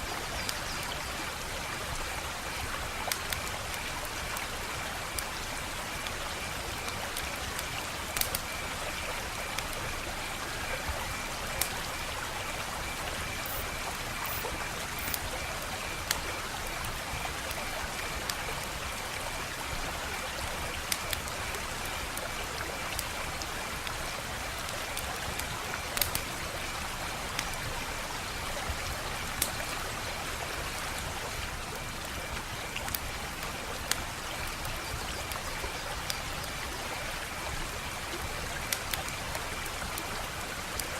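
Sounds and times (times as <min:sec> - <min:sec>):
wood fire crackling: 0:01.2 - 0:40.9
fire popping: 0:05.1 - 0:08.6, 0:13.3 - 0:15.3, 0:24.8 - 0:26.3.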